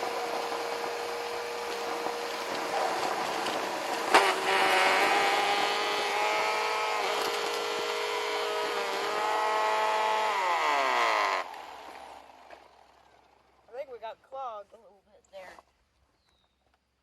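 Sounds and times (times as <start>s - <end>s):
vacuum cleaner sucking up grass: 0.0s - 12.3s.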